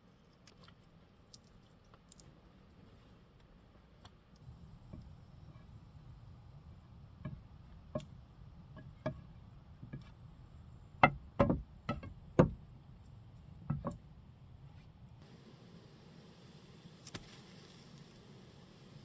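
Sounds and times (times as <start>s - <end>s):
sharp knocks: 11.0s - 12.6s.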